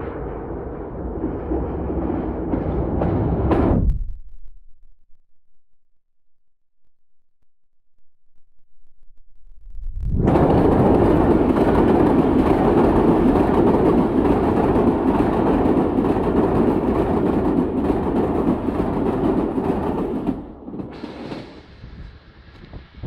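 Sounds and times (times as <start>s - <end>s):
train rumbling over bridge: 0.0s - 4.2s, 10.2s - 23.0s.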